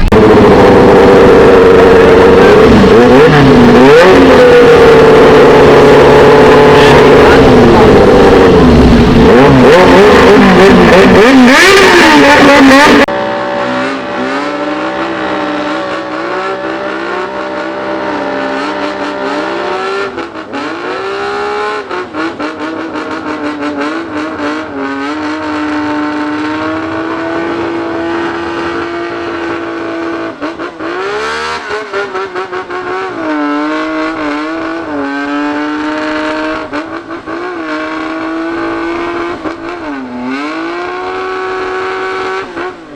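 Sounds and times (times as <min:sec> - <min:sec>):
motorcycle engines revving: 0:00.0 - 0:42.9.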